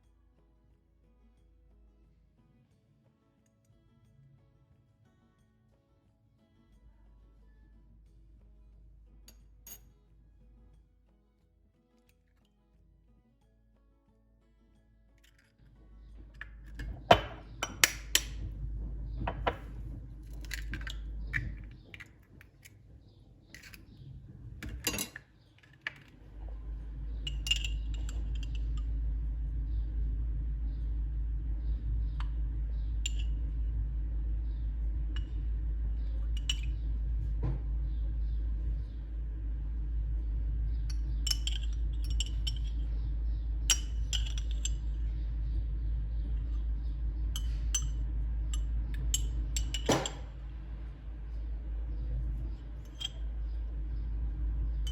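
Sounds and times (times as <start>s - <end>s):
steady low hum: 15.3s - 54.9s
tableware clinking: 16.7s - 18.3s, 19.3s - 19.7s, 24.6s - 25.2s, 27.3s - 28.6s, 43.7s - 44.8s, 49.2s - 50.3s, 52.9s - 53.2s.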